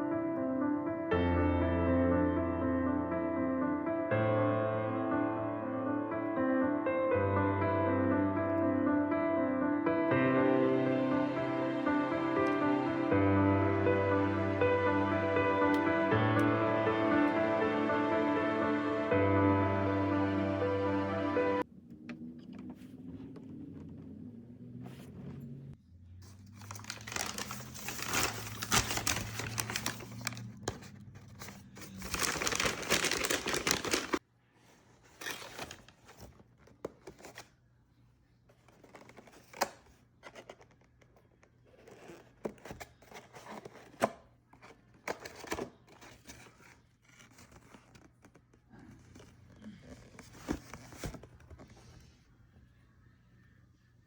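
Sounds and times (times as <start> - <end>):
soft background music: 0.0 - 21.7, 26.7 - 34.1
crinkly material tearing and crumpling: 26.3 - 34.2.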